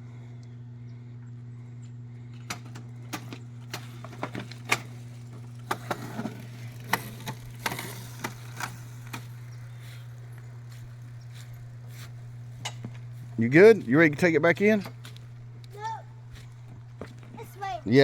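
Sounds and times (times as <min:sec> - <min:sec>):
steady low hum: 0:00.0 - 0:18.0
electric dirt bike rattling clicks: 0:01.8 - 0:11.2.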